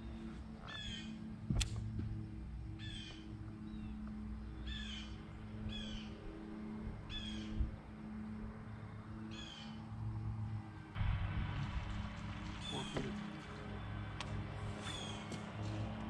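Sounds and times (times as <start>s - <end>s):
steady low hum: 0.0s - 16.0s
bird calling: 0.7s - 1.2s, 2.8s - 4.0s, 4.6s - 6.2s, 9.3s - 9.8s, 12.6s - 13.4s, 14.8s - 15.4s.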